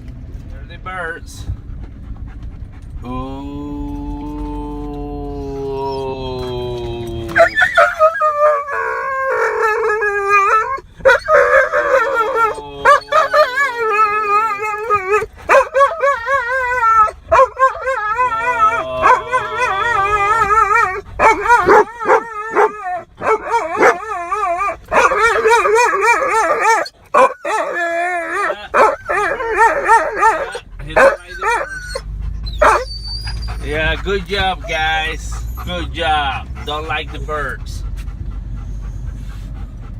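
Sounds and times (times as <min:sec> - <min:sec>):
dog whining and howling: 0:03.0 - 0:37.6
dog yipping and barking: 0:07.3 - 0:33.7.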